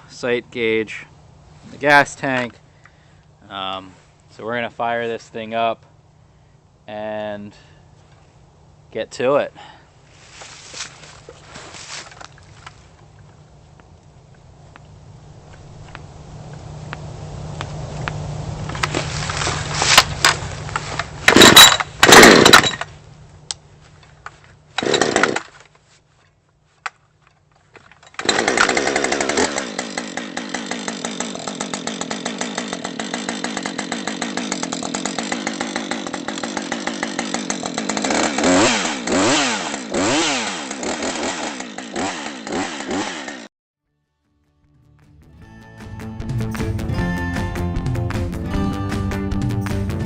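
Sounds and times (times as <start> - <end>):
chainsaw revving: 21.2 - 22.9, 24.8 - 25.6, 28.1 - 43.5.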